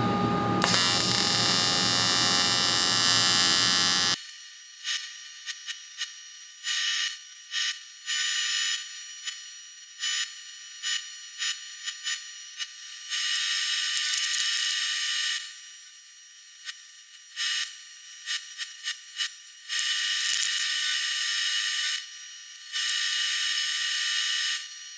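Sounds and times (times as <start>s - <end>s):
welding arc buzzing: 0.0s - 4.2s.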